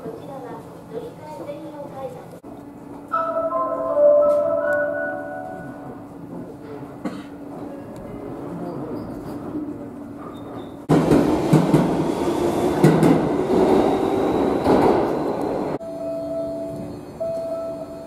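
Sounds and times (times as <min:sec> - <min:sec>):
train rushing rumble: 0:10.8 - 0:15.8.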